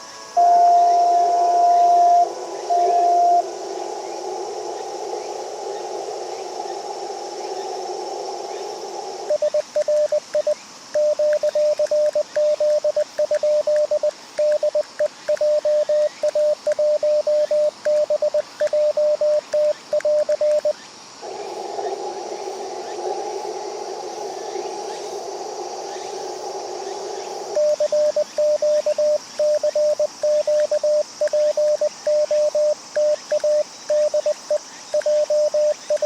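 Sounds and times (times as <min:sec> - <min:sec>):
morse code beeps: 0:00.0 - 0:03.4, 0:09.4 - 0:20.7, 0:27.6 - 0:36.0.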